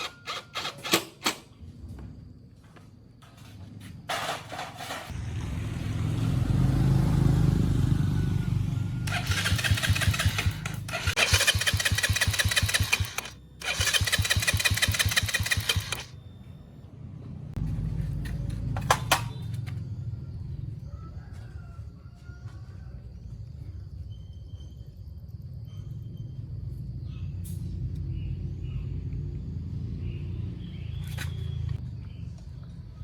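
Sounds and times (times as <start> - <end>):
motorcycle engine running: 5.2 - 16.2.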